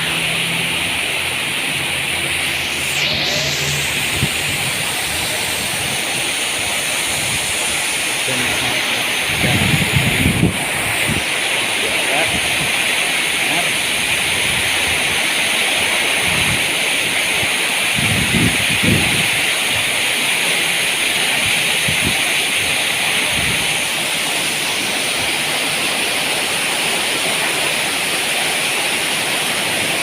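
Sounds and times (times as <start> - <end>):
heavy rain pouring: 0.0 - 30.0
low rumbles from wind gusts: 4.0 - 12.9, 17.3 - 20.0.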